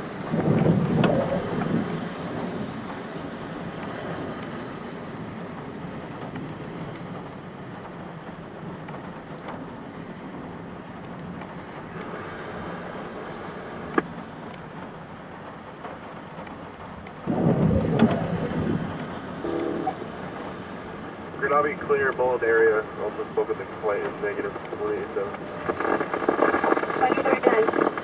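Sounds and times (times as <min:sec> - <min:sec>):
steady rain hiss: 0:00.0 - 0:28.0
thunder rumble: 0:00.0 - 0:28.0
sharp thunder crack: 0:00.3 - 0:02.9, 0:17.2 - 0:20.0.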